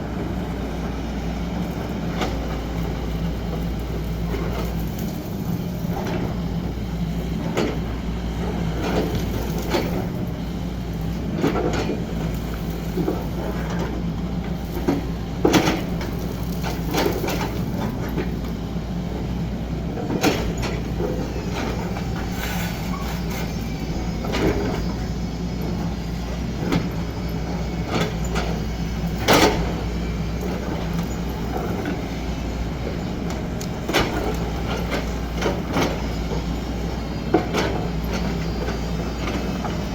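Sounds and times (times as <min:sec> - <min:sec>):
excavator diesel engine running: 0:00.0 - 0:39.9
machine clanks and knocks: 0:11.4 - 0:12.2, 0:14.7 - 0:18.5, 0:20.0 - 0:23.5, 0:27.8 - 0:32.3, 0:32.9 - 0:36.5.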